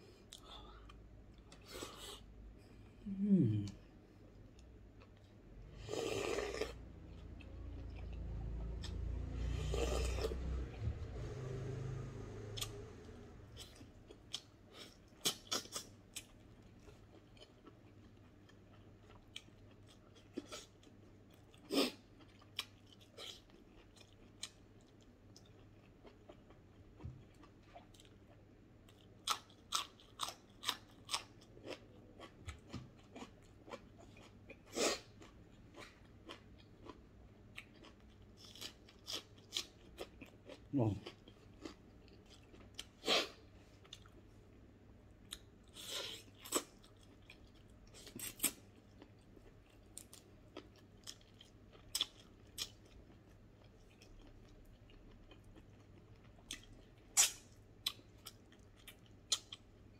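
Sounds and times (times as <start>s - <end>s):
chewing and crunching food: 4.4s - 59.9s.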